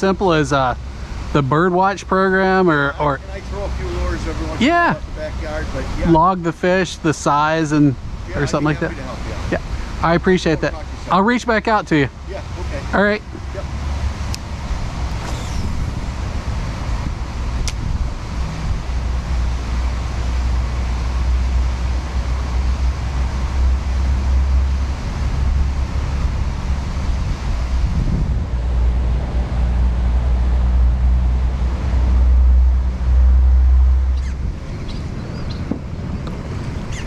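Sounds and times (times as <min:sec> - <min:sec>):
wind buffeting microphone: 0:14.0 - 0:19.7.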